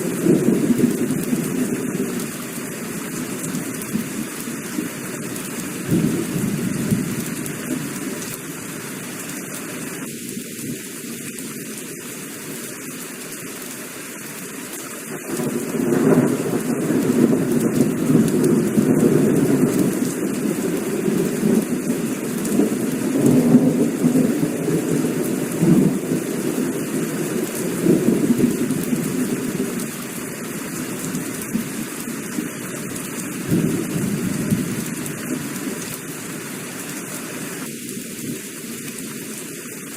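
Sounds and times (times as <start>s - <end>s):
thunder rumbling: 0.0s - 2.4s, 5.8s - 7.8s, 15.2s - 30.0s, 33.4s - 35.6s
heavy rain falling: 0.0s - 39.9s.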